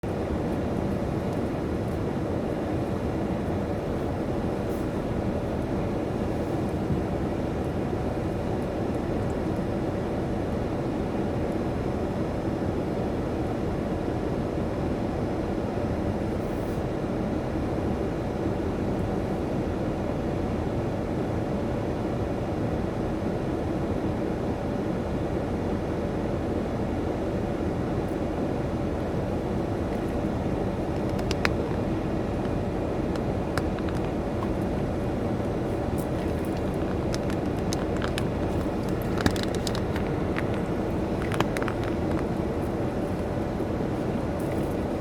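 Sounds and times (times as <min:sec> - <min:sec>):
faint steady hum: 0:00.0 - 0:45.0
car wash rumbling: 0:28.2 - 0:45.0.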